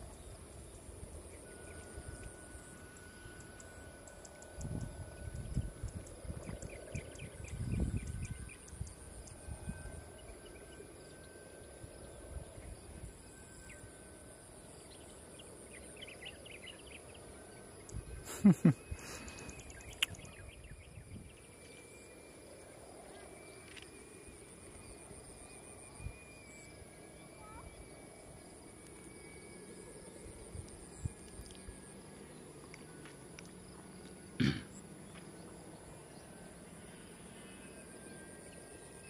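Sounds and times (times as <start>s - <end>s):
wind rumbling on microphone: 4.6s - 10.1s, 20.0s - 21.4s.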